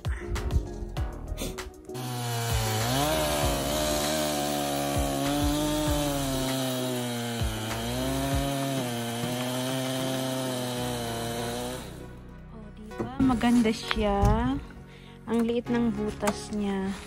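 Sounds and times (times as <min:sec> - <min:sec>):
small petrol engine running: 0:02.0 - 0:12.0.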